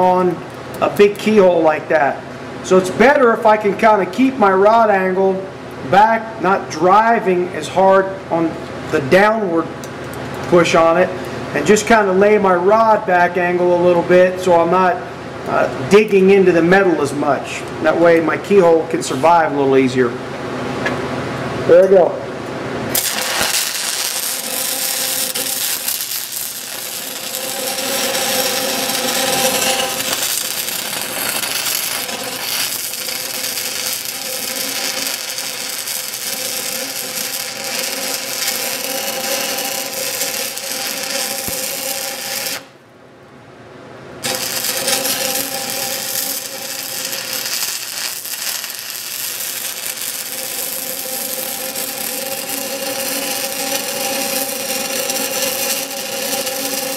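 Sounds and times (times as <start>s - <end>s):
welding arc crackling: 22.9s - 42.8s, 44.2s - 56.9s.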